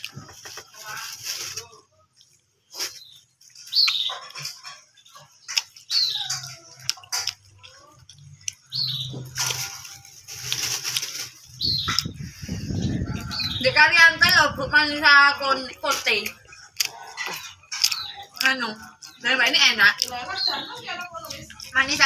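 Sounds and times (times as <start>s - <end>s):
bird chirping: 2.8s - 9.4s, 11.5s - 14.4s, 16.4s - 21.7s.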